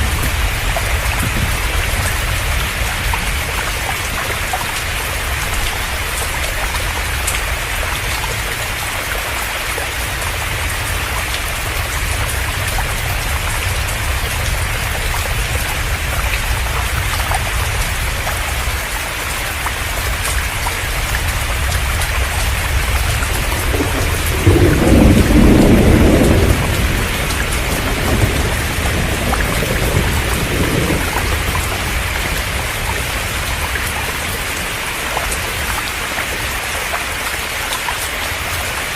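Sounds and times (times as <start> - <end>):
low rumble of thunder: 0.0 - 8.2, 20.0 - 34.8
heavy rain pouring: 0.0 - 38.9.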